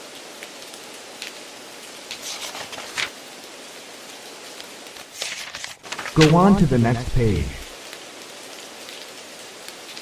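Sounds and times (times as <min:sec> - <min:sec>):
steady rain-like hiss: 0:00.0 - 0:10.0.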